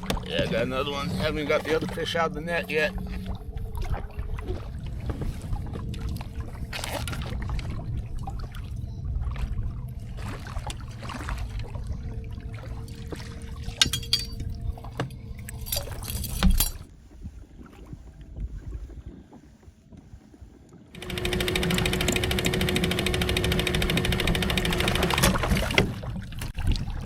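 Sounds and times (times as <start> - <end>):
water splashing and dripping: 0.0 - 16.9, 24.6 - 27.0.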